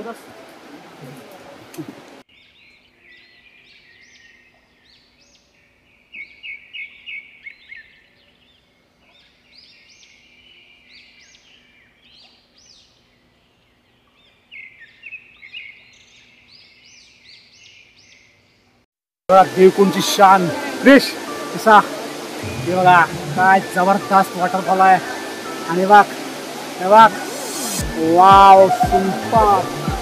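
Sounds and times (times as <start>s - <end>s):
small birds chirping: 1.8s - 18.8s.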